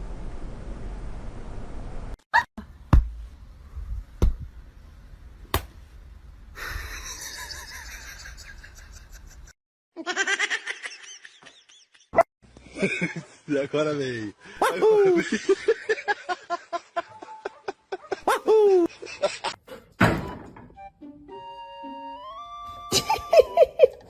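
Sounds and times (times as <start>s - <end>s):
person laughing: 6.6s - 12.1s, 14.6s - 19.6s, 22.9s - 24.0s.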